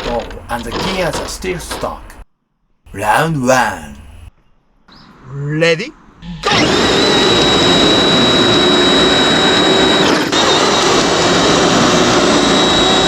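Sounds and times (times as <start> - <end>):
high-pitched motor whine: 6.2 - 13.0.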